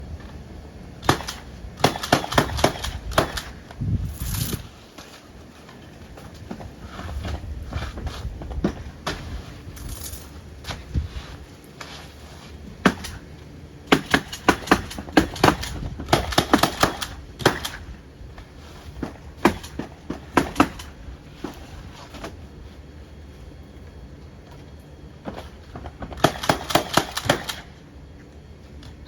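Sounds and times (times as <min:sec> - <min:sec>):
nail gun firing: 0:01.0 - 0:03.6, 0:13.9 - 0:17.9, 0:19.4 - 0:21.0, 0:26.1 - 0:27.7.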